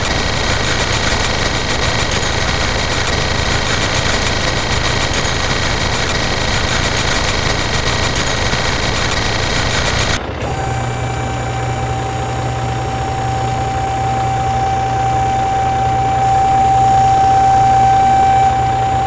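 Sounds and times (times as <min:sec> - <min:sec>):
small motor rattling and whining: 0:00.0 - 0:19.0.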